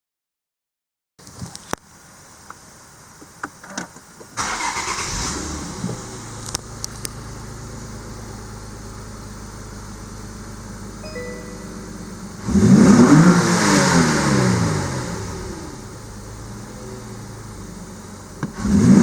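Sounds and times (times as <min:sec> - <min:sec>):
car engine idling: 0:01.8 - 0:19.0
engine starter cranking: 0:04.4 - 0:06.0.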